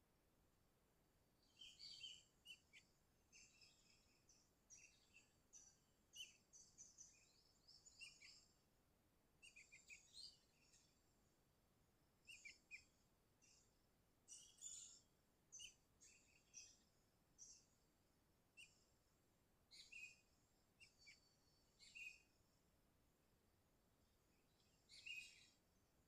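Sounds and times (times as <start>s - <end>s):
bird chirping: 1.4s - 8.6s, 9.4s - 11.1s, 12.2s - 17.9s, 18.6s - 22.6s, 24.0s - 25.8s.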